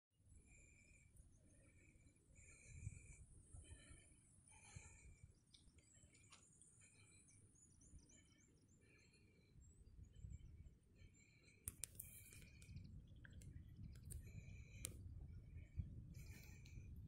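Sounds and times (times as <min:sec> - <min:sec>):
birds chirping: 0:00.4 - 0:16.9
sharp clicks: 0:11.6 - 0:15.0.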